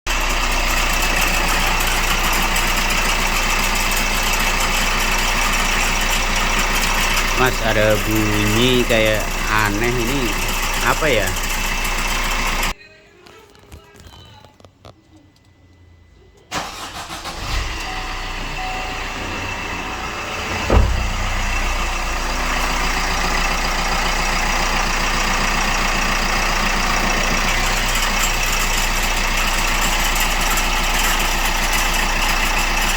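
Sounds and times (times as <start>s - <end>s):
diesel engine running: 0.1s - 12.7s, 16.6s - 32.9s
heavy thump: 19.1s - 22.9s.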